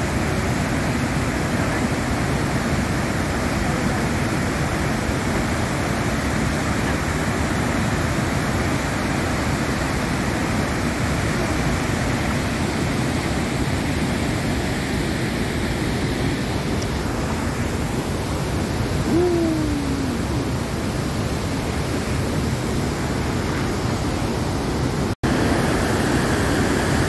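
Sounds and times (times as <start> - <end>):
waterfall roaring: 0.0 - 27.0.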